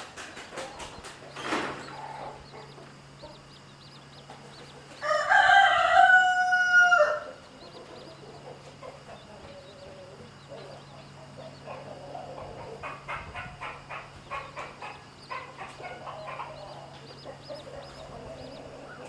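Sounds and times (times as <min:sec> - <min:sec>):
chicks peeping: 0:00.0 - 0:19.0
rooster crowing: 0:04.6 - 0:08.1.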